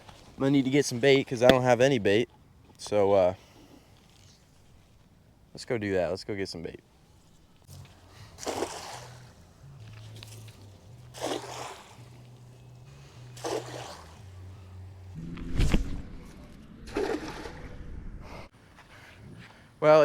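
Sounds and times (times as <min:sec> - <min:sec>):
cast net splashing in water: 0:07.7 - 0:12.6, 0:13.2 - 0:14.4, 0:16.9 - 0:17.7.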